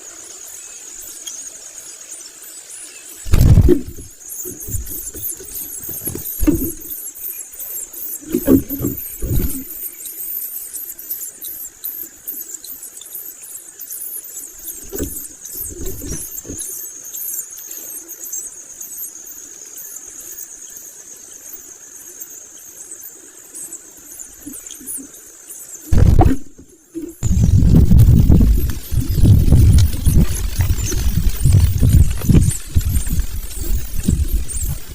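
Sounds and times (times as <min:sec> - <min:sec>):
nestlings begging calls: 0:03.2 - 0:18.5, 0:24.0 - 0:34.9
low bumps: 0:03.3 - 0:07.0, 0:08.2 - 0:09.8, 0:14.7 - 0:16.6, 0:25.9 - 0:34.9.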